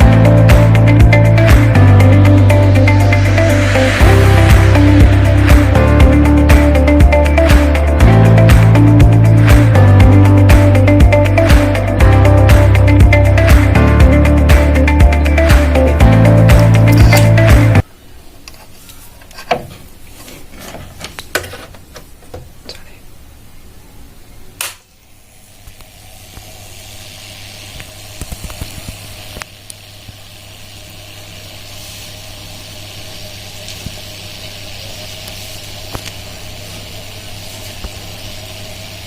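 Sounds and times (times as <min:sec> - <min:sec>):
music: 0:00.0 - 0:17.8
water sizzling and fizzing: 0:25.0 - 0:39.0.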